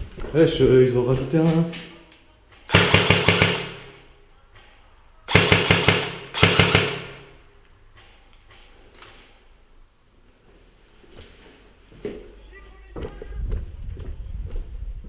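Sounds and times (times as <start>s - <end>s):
airsoft rifle firing bursts: 2.7s - 4.0s, 5.3s - 7.4s.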